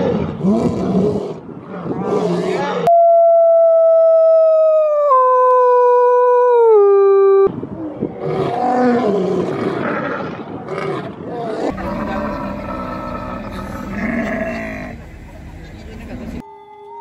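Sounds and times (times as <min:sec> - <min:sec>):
lion calling: 0:11.4 - 0:16.4.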